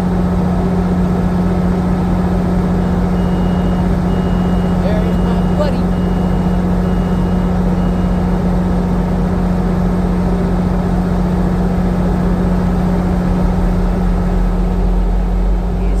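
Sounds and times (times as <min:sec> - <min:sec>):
diesel locomotive engine drone: 0:00.0 - 0:16.0
faint high beeping: 0:02.8 - 0:08.3.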